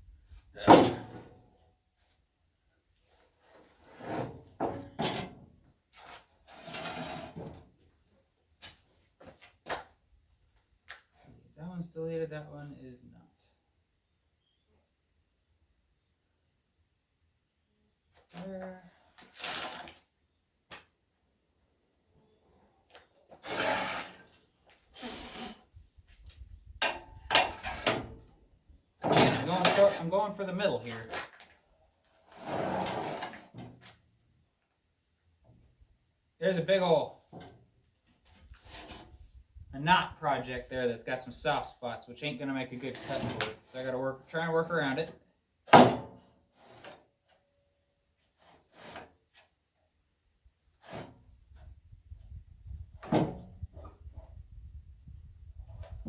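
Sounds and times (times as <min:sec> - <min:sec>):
wood scraping on work surface: 0:06.0 - 0:07.5, 0:23.4 - 0:24.4.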